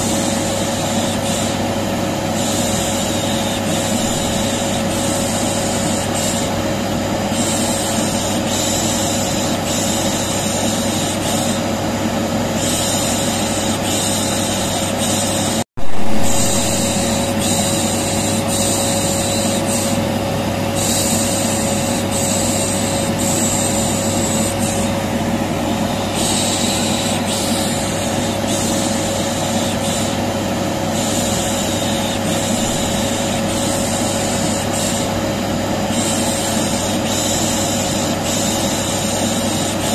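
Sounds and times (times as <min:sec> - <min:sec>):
vacuum cleaner running: 0:00.0 - 0:39.9
rhythmic shushing: 0:15.8 - 0:20.0.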